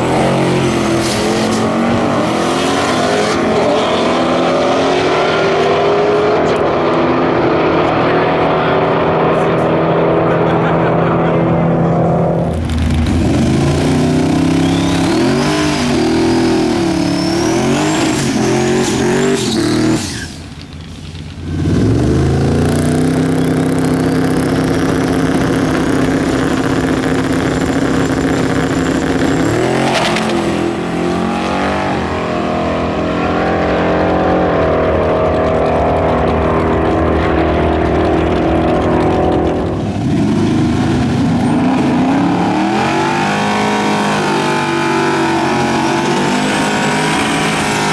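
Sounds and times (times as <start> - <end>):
engine pulling hard: 0.0 - 47.9
turbo whistle: 14.4 - 20.4.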